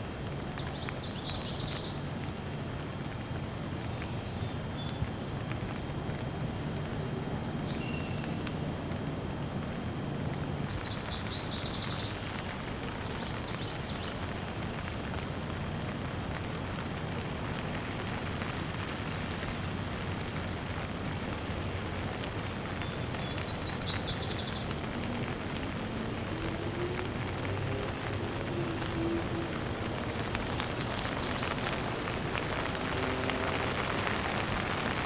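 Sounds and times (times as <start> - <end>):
steady rain falling: 0.0 - 35.0
songbird chirping: 0.4 - 2.1, 7.7 - 8.5, 10.7 - 14.2, 22.8 - 25.4, 26.0 - 34.7.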